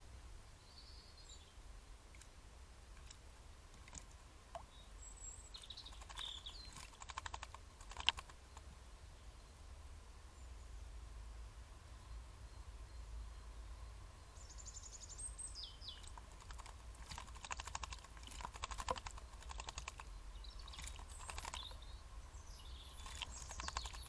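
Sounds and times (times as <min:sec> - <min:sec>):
faint bird chirps: 0:00.4 - 0:02.3, 0:03.8 - 0:11.0, 0:11.8 - 0:24.0
steady low hum: 0:01.6 - 0:24.0
bird splashing in water: 0:02.9 - 0:04.7, 0:05.5 - 0:08.6, 0:15.9 - 0:21.8, 0:22.9 - 0:24.0.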